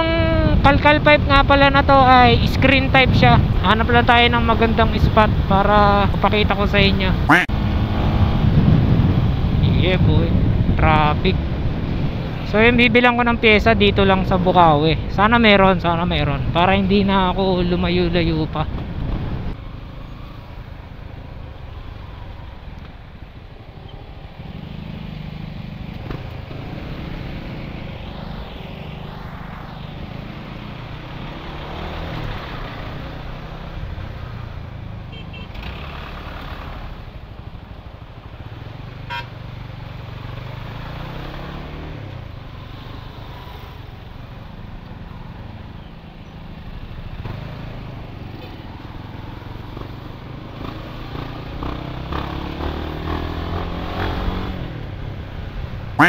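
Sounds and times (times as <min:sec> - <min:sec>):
motorcycle engine revving: 0:07.2 - 0:09.4, 0:47.1 - 0:54.9.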